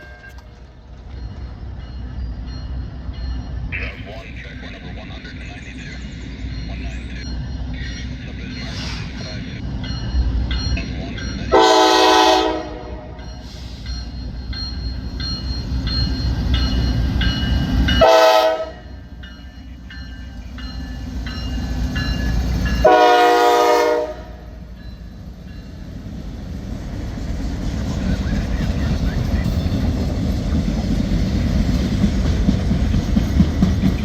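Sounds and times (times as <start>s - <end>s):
freight train rumble: 0.0s - 34.0s
locomotive air horn blasts: 11.5s - 13.2s, 18.0s - 18.9s, 22.8s - 24.5s.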